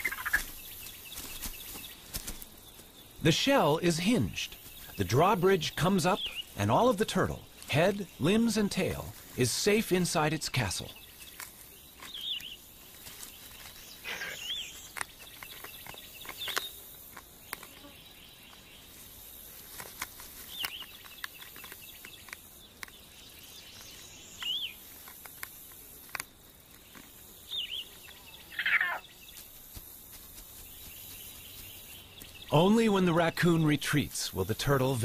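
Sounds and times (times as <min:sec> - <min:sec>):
light clicks and rustles: 0:19.6 - 0:23.0.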